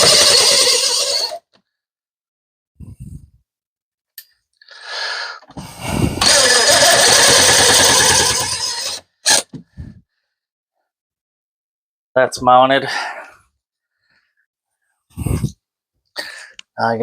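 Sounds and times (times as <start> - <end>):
power drill driving a screw: 0.0 - 1.4, 6.0 - 9.5.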